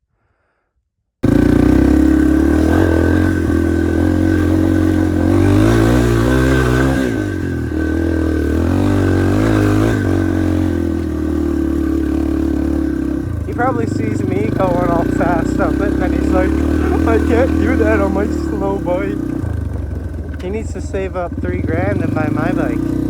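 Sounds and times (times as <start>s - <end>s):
dirt bike engine revving: 1.2s - 23.0s.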